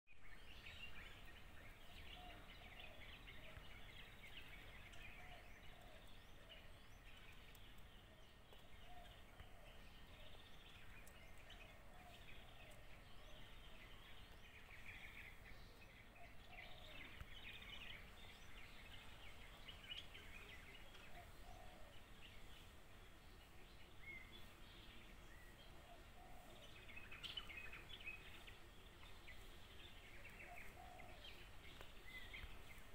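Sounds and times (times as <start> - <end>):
small birds chirping and twittering: 0.1 - 32.9.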